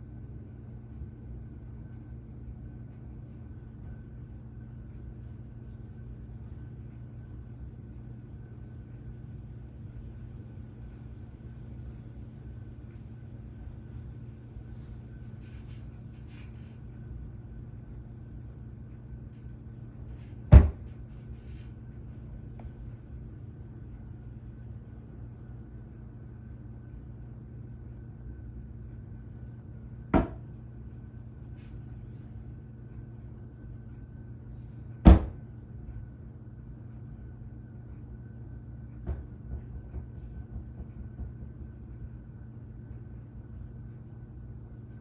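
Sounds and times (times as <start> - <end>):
steady low hum: 0.0 - 45.0
sharp knocks: 30.2 - 30.5.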